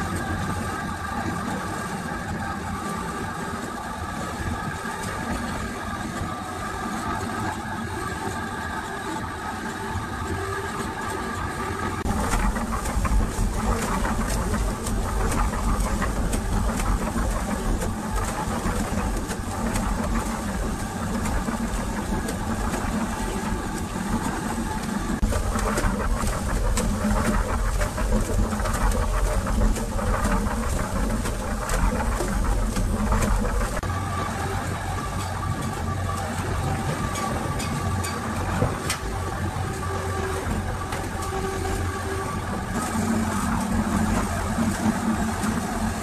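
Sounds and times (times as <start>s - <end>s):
rattling drum rumble: 12.0s - 46.0s
concrete mixer running: 24.4s - 33.8s.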